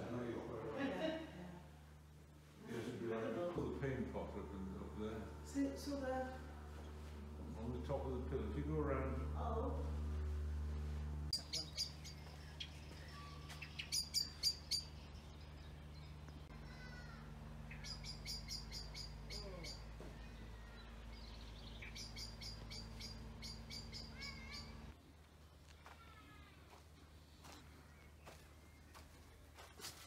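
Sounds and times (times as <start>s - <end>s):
steady low hum: 0.0s - 30.0s
songbirds chirping: 11.3s - 25.9s, 26.8s - 29.7s.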